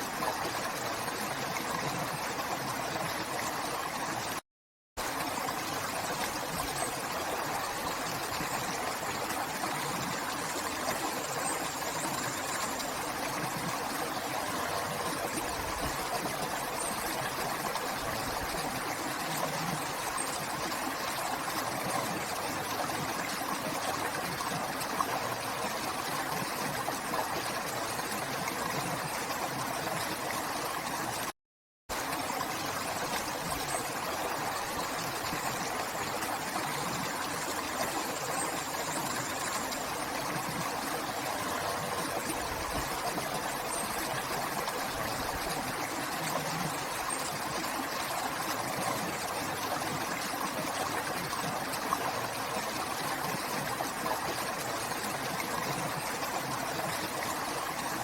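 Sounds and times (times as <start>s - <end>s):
river water flowing: 31.9s - 58.0s.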